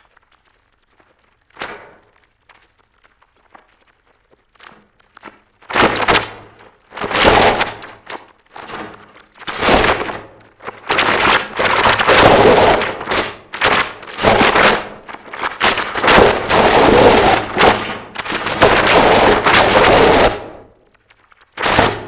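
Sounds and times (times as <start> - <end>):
harsh distorted noise music: 15.6 - 20.6, 21.6 - 22.0.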